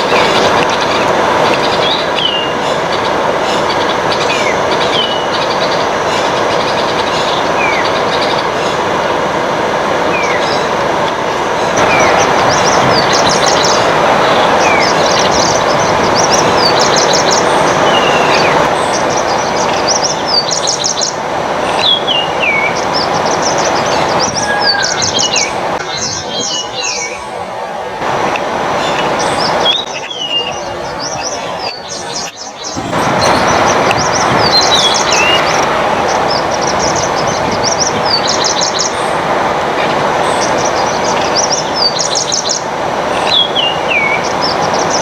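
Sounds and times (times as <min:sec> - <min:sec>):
loud rushing noise: 0:00.0 - 0:40.9
rapid high bird chirps: 0:14.6 - 0:28.1, 0:28.8 - 0:39.1.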